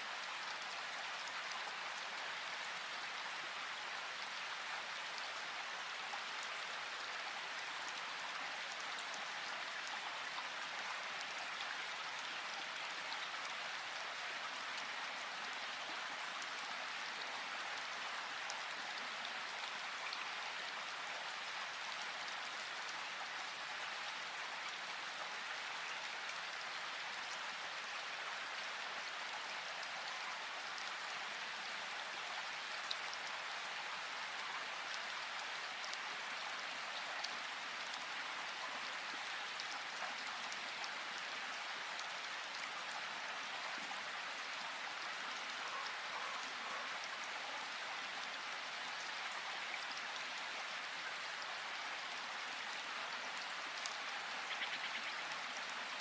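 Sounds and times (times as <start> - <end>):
river water rushing: 34.7 - 56.0.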